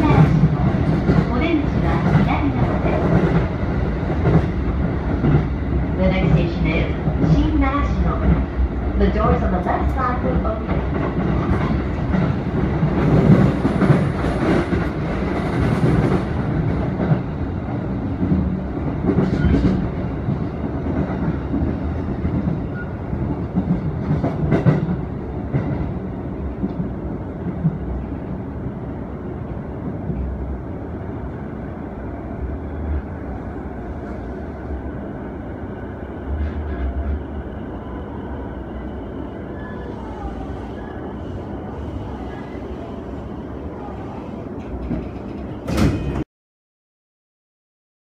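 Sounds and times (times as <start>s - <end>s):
train wheels rumbling on rails: 0.0s - 31.6s, 43.8s - 46.2s.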